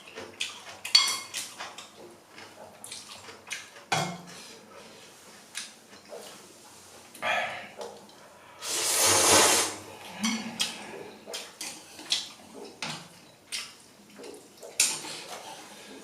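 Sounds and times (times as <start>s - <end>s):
person slurping noodles: 8.6s - 9.9s.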